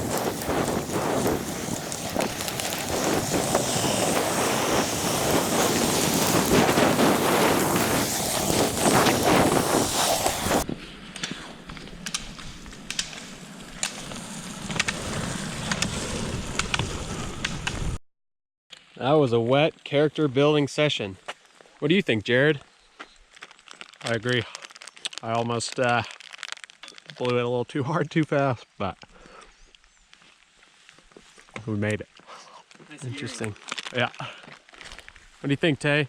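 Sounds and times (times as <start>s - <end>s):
wind buffeting microphone: 0.0s - 10.6s
roller skis rolling on wet pavement: 0.0s - 18.0s, 23.3s - 27.2s, 32.7s - 36.0s.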